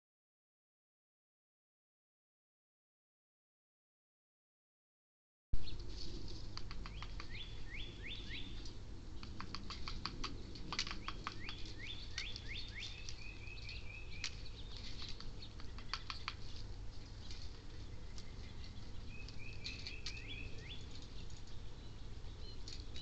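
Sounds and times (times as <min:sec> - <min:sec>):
steady low hum: 0:05.6 - 0:23.0
sharp clicks and taps: 0:06.5 - 0:07.4, 0:08.6 - 0:16.4
songbirds whistling: 0:06.5 - 0:23.0.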